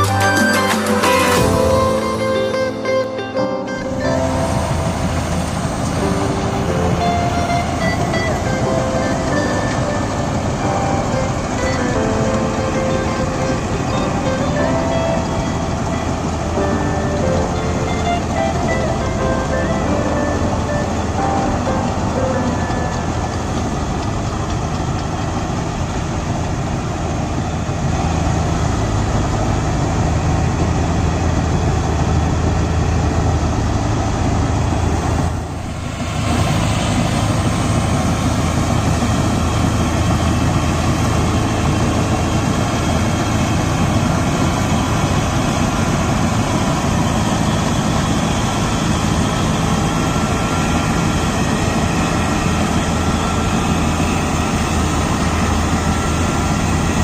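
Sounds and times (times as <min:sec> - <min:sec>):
diesel tractor engine drone: 0:00.0 - 0:57.0
mechanical rush: 0:00.0 - 0:57.0.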